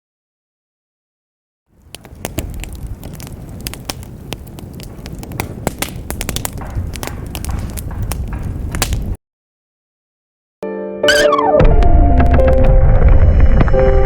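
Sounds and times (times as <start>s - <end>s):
crackling pops and snaps: 1.8s - 9.2s
low rumble: 11.6s - 14.0s.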